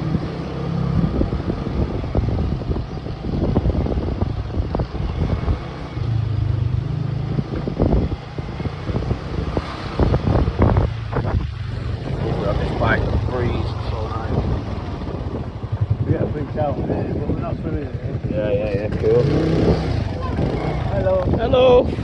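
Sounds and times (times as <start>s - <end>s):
wind buffeting microphone: 0.0s - 22.0s
motorbike engine running: 6.4s - 22.0s.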